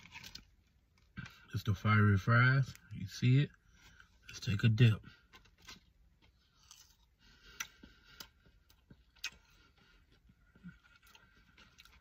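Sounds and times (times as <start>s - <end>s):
soft clicks and crunches: 0.0s - 1.5s
faint chewing of crispy food: 0.0s - 1.7s, 2.6s - 12.0s.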